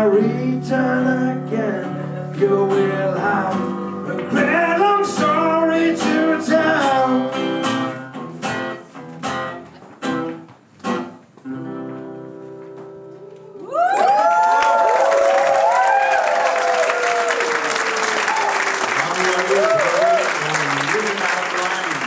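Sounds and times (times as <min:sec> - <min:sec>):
blues song with guitar and singing: 0:00.0 - 0:13.6
crowd cheering and applause: 0:13.6 - 0:22.0.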